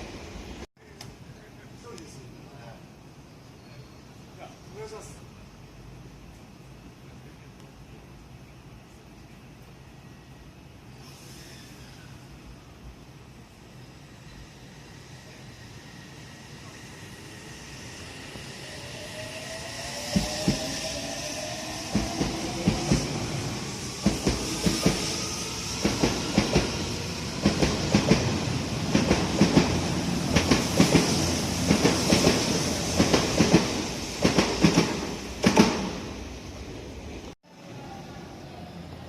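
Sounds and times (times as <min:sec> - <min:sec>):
train wheels clacking over rail joints: 0:28.9 - 0:36.0.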